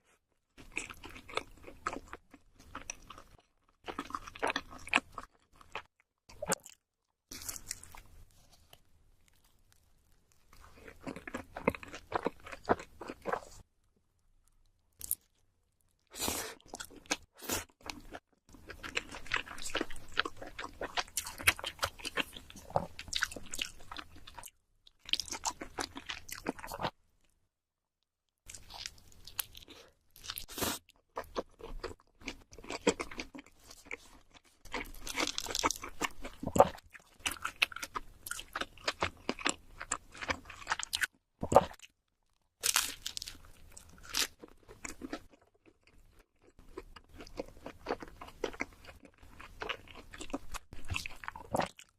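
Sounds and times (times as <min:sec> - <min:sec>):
crunchy wet chewing: 0:00.6 - 0:13.6, 0:28.5 - 0:41.9, 0:42.6 - 0:51.9.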